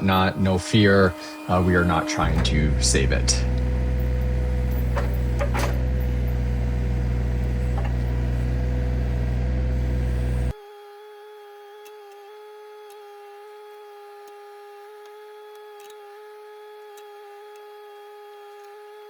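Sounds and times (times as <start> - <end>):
diesel engine running: 0.0 - 10.5
quiet steady hum: 0.0 - 10.6.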